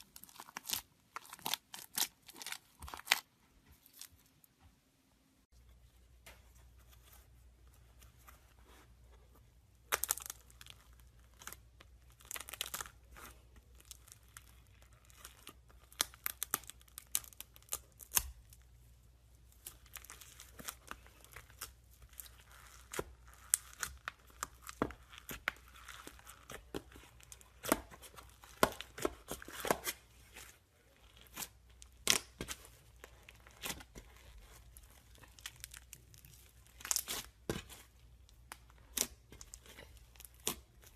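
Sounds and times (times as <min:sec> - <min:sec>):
slime squeezed crackling and popping: 0:09.9 - 0:18.6, 0:19.6 - 0:30.0, 0:30.9 - 0:40.9.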